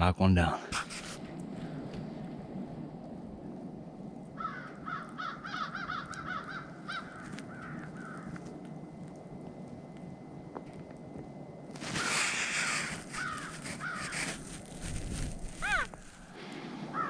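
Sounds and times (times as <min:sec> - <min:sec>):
crows cawing: 0:04.4 - 0:08.5, 0:11.9 - 0:14.8, 0:15.5 - 0:17.0.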